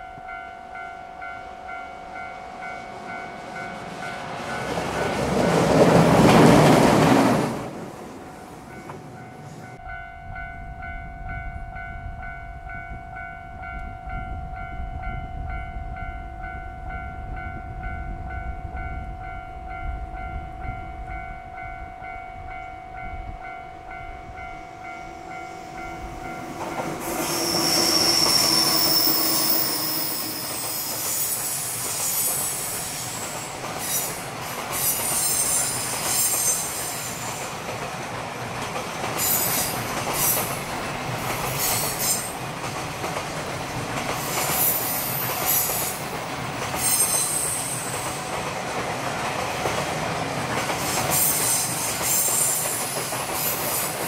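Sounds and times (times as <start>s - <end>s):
freight train passing: 0.0s - 54.0s
level crossing bell: 8.7s - 27.0s
high wheel squeal: 27.0s - 34.2s, 34.8s - 37.3s, 46.8s - 48.0s.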